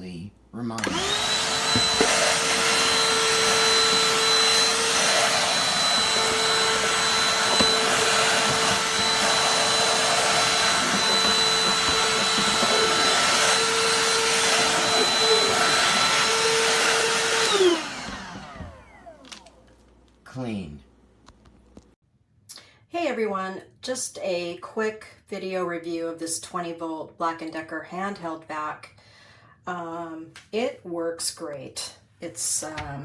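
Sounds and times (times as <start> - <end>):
handheld vacuum motor whine: 0.8 - 19.8.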